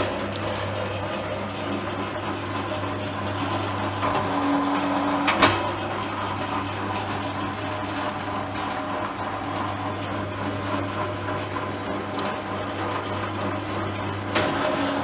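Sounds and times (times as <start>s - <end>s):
machine motor hum: 0.0s - 15.0s.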